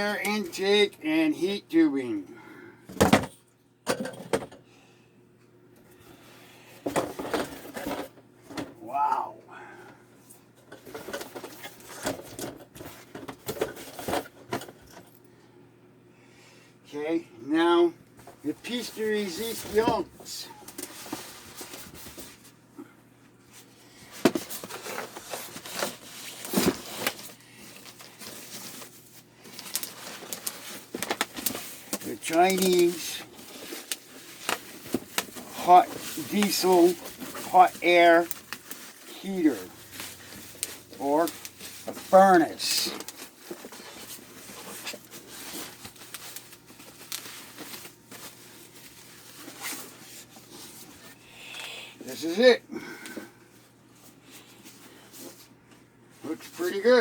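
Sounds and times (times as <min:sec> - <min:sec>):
cardboard and packing rustling: 0:06.8 - 0:09.1, 0:10.6 - 0:15.1, 0:18.2 - 0:22.6, 0:23.5 - 0:51.2, 0:52.1 - 0:57.0.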